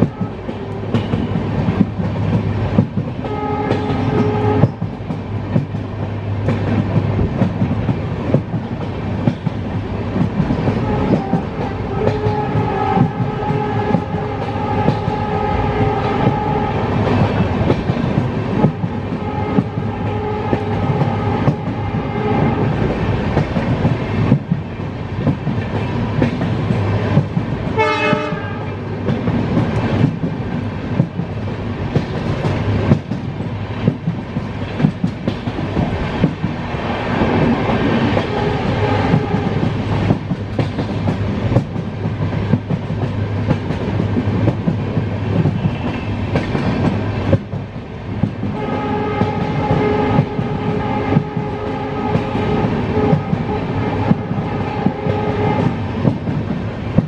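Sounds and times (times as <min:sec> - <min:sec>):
train horn: 0:00.0 - 0:01.2, 0:03.2 - 0:04.8, 0:10.6 - 0:17.0, 0:18.6 - 0:22.8, 0:27.7 - 0:28.9, 0:38.2 - 0:39.7, 0:48.4 - 0:55.8
train rumble and wheel clatter: 0:00.0 - 0:57.0.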